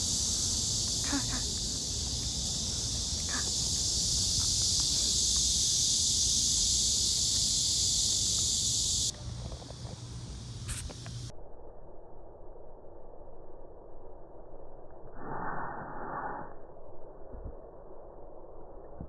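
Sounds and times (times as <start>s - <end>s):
cicada chorus: 0.0s - 11.3s.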